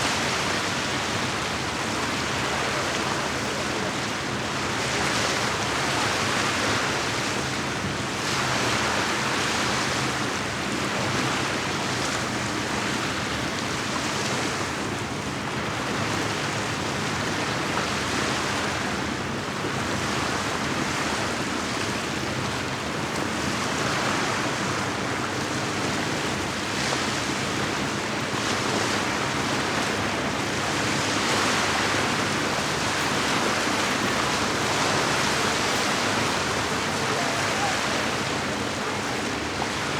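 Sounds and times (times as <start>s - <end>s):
lake waves lapping on shore: 21.7s - 39.9s.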